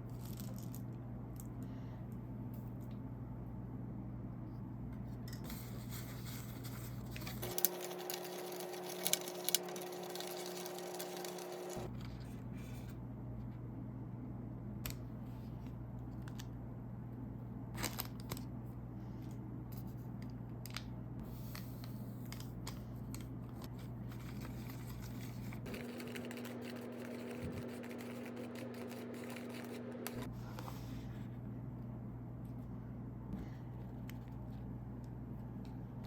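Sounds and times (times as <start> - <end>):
steady low hum: 0.0 - 36.0
plastic packaging clicks and scrapes: 7.0 - 12.0.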